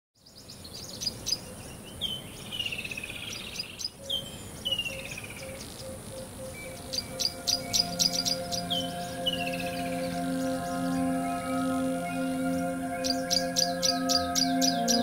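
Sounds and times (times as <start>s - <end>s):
songbirds singing: 0.2s - 15.0s
high-pitched hiss: 4.2s - 15.0s
faint pulsing tone: 5.4s - 15.0s.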